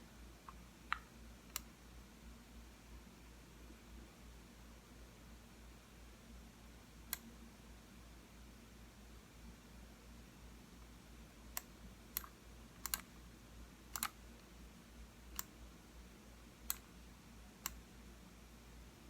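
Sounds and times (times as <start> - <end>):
faint low hum: 0.0 - 19.0
mouse buttons clicking: 11.6 - 13.1, 13.9 - 14.2.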